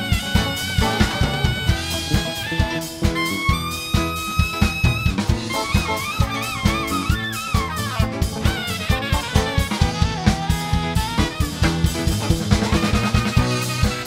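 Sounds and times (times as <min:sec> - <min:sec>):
drum kit beat: 0:00.0 - 0:14.0
horn melody with bending notes: 0:00.0 - 0:14.0.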